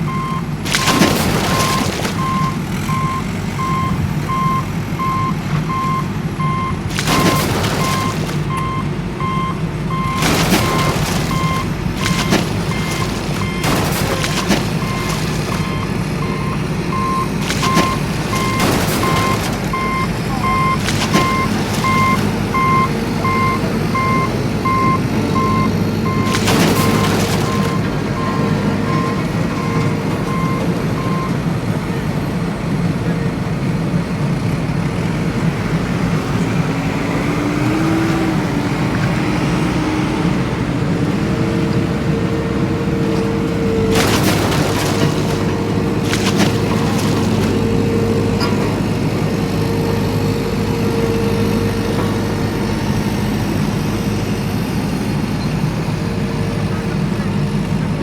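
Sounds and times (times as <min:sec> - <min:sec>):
reversing alarm beeping: 0:00.0 - 0:32.2
vehicle motor running: 0:00.0 - 0:58.0.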